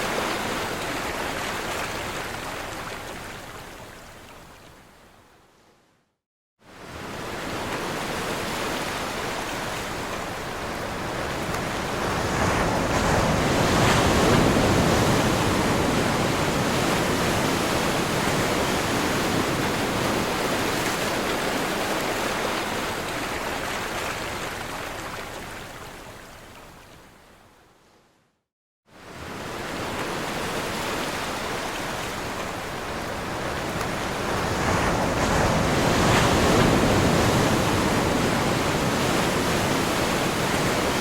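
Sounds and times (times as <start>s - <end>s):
ocean waves breaking: 6.8s - 25.4s, 29.0s - 41.0s.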